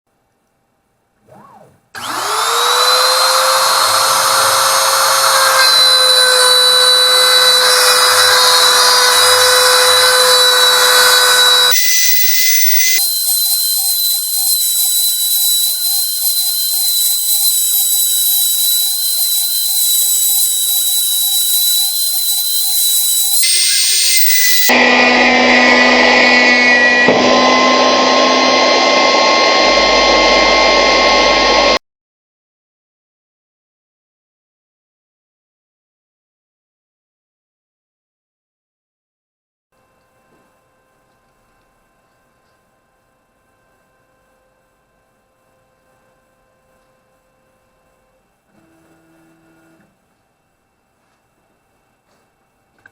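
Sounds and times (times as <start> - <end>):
spindle motor whine: 1.2 - 31.8.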